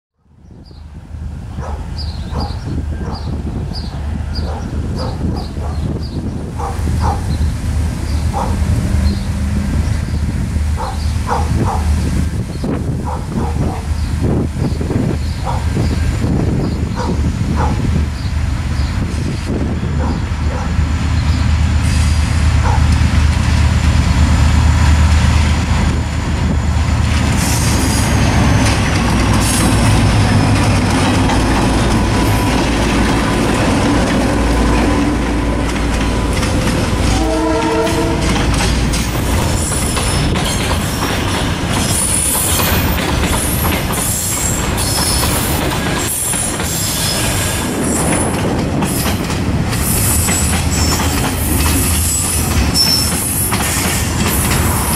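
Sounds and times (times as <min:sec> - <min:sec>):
diesel locomotives passing: 0:00.2 - 0:54.9
train horn blast: 0:36.9 - 0:38.6
train wheels clicking over rail: 0:37.8 - 0:54.9.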